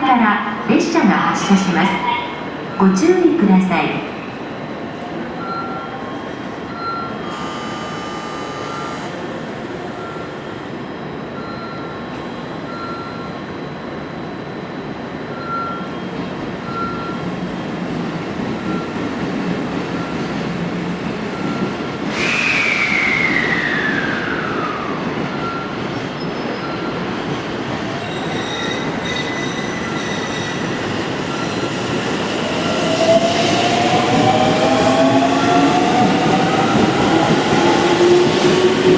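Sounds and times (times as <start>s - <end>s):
train running noise: 0.0s - 38.9s
falling squeal: 22.1s - 24.6s, 28.0s - 30.7s.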